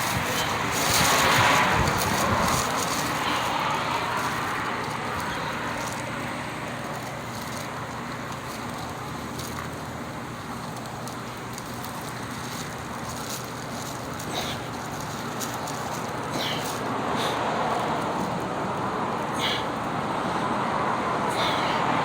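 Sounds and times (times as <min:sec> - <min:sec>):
steady rushing noise: 0:00.0 - 0:09.5.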